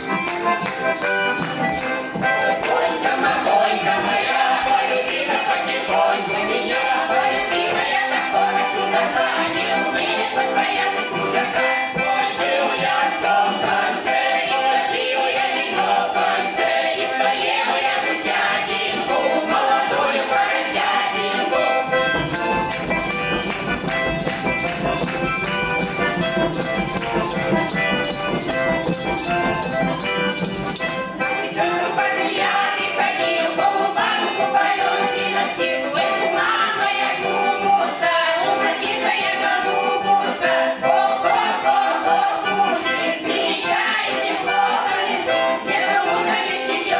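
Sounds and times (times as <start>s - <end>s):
folk ensemble singing: 0.0s - 46.9s
quick percussive beats with bass: 22.2s - 31.0s.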